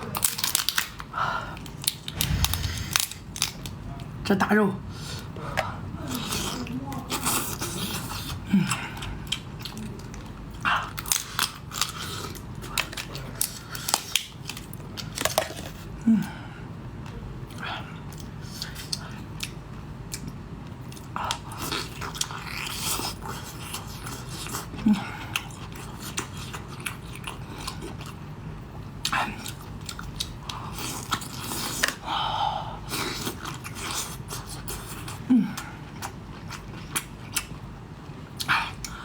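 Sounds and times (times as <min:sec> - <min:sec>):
low hum: 0:02.1 - 0:03.5.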